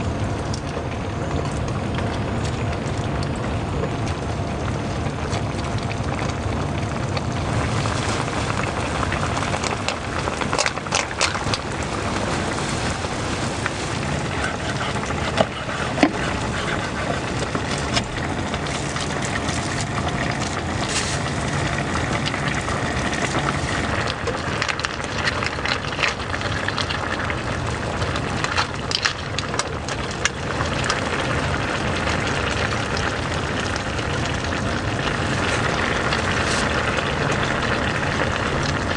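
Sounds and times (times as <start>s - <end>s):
drops and drips ticking: 0.0s - 38.9s
heavy rain falling: 2.6s - 28.5s.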